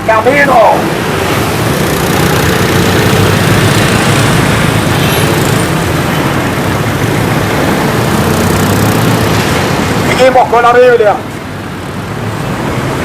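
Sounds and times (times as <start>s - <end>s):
traffic rumble: 0.0s - 13.0s
engine running: 0.8s - 10.1s.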